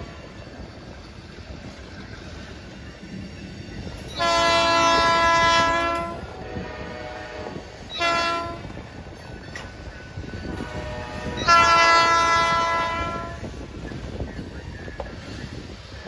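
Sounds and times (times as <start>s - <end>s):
train rumbling on rails: 0.0s - 16.0s
locomotive air horn: 4.2s - 8.8s, 10.5s - 13.5s.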